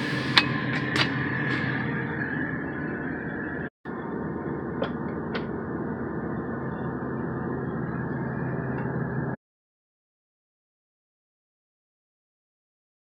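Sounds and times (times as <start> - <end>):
low drone of running vehicle: 0.0 - 9.4.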